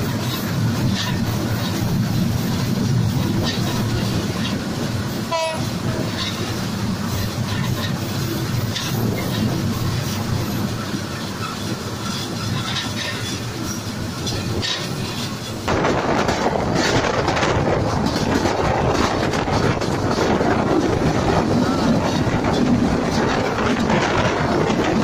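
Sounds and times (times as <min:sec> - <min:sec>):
train wheels rumbling on rails: 0:00.0 - 0:25.0
wheels clicking over rail joints: 0:00.0 - 0:25.0.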